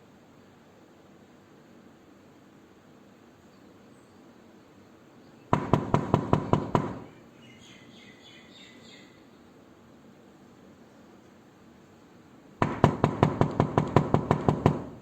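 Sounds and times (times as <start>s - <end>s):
knocking on a door: 5.6s - 7.1s, 12.6s - 15.0s.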